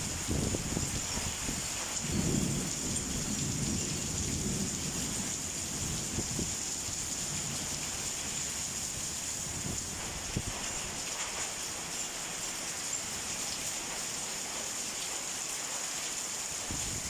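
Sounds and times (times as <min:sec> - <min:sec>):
thunder rumbling: 0:00.0 - 0:07.8
rain pouring: 0:00.0 - 0:17.0.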